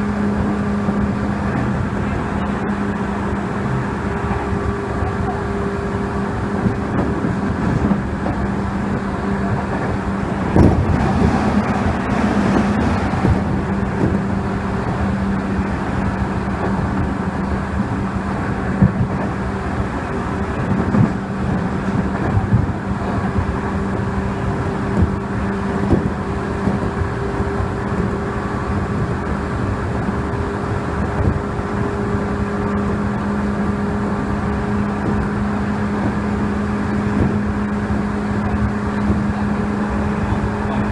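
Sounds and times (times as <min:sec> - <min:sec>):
low hum: 0:00.0 - 0:40.9
train running rumble: 0:00.0 - 0:40.9
wheel knocks on track: 0:09.8 - 0:14.3.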